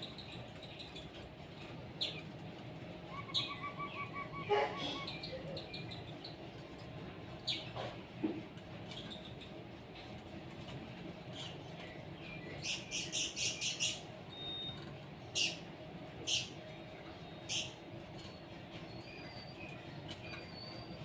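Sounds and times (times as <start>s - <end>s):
low background hum: 0.0s - 21.0s
small birds chirping: 11.3s - 15.6s, 16.2s - 16.6s.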